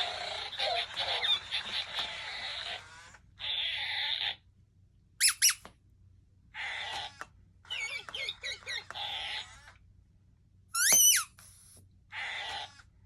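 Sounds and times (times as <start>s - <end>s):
warbling chirpy yips: 7.7s - 9.5s
rising rubber squeaks: 10.8s - 11.3s.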